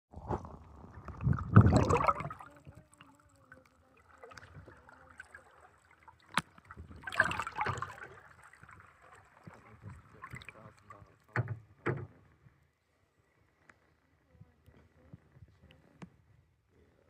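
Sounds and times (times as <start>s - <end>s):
water sloshing and splashing: 0.2s - 12.0s.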